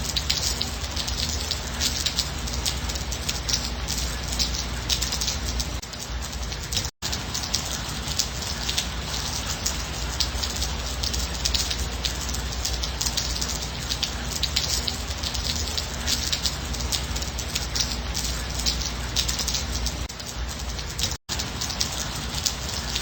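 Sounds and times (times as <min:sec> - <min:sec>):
raindrops striking close: 0:00.0 - 0:23.0
steady rain falling: 0:00.0 - 0:23.0.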